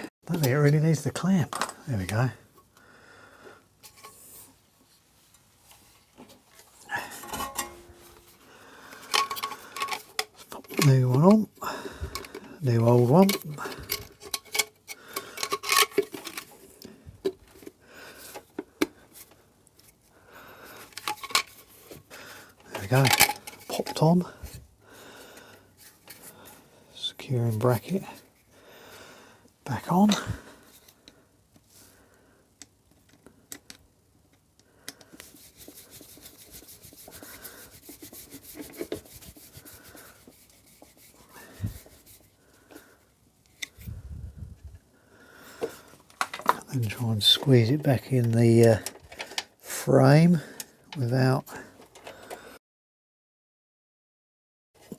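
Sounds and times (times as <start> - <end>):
light clicking and scraping: 5.2 - 11.5, 12.1 - 20.0, 20.7 - 24.6, 32.6 - 43.9, 45.5 - 49.5
small parts being handled: 5.7 - 20.0, 20.7 - 24.6, 25.4 - 26.6, 32.6 - 44.0, 45.6 - 49.6
soft rubbing of rubber: 35.2 - 42.9.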